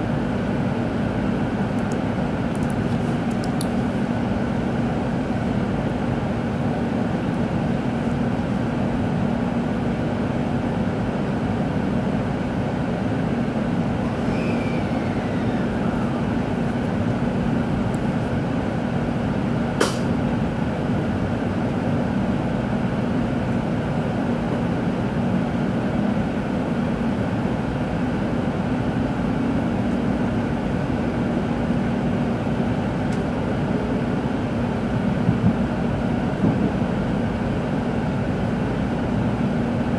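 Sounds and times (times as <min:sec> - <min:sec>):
train interior rumble: 0:00.0 - 0:39.9
sharp click: 0:19.8 - 0:20.1.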